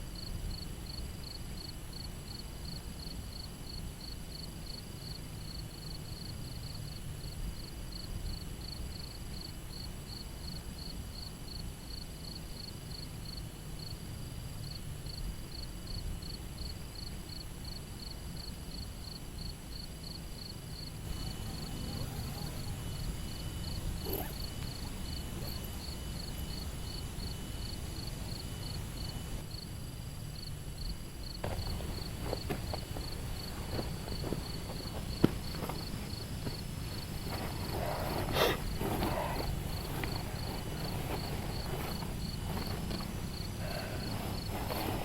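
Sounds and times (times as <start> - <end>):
crickets chirping: 0.0 - 45.0
low steady rumble: 13.0 - 45.0.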